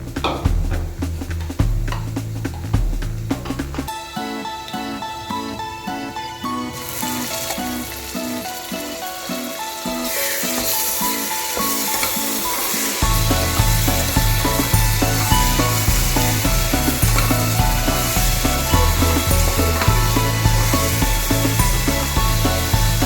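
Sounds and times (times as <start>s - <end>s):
background music: 0.0s - 23.0s
food sizzling in hot oil: 6.7s - 23.0s
heavy music beat: 9.3s - 23.0s.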